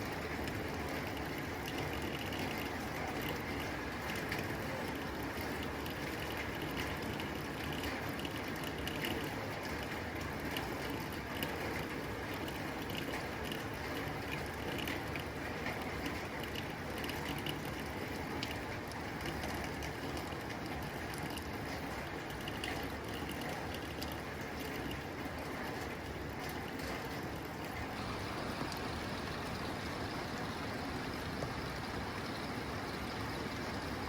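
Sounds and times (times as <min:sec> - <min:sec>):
rain on a tin roof: 0:00.0 - 0:34.0
drops ticking on metal: 0:26.3 - 0:34.0.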